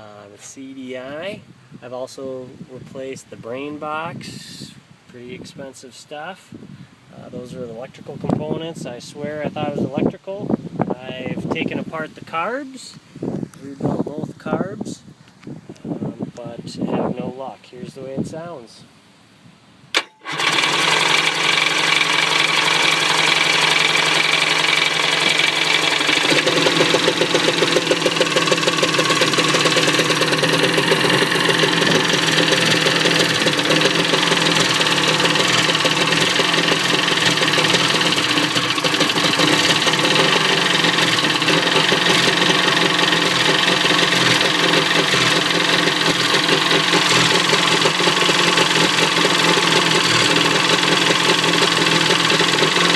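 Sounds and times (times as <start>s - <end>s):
two-stroke engine idling: 20.0s - 52.9s.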